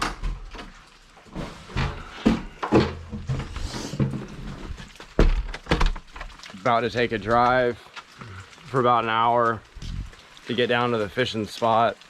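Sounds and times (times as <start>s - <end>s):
knocks and thuds: 1.7s - 4.4s, 5.1s - 6.2s.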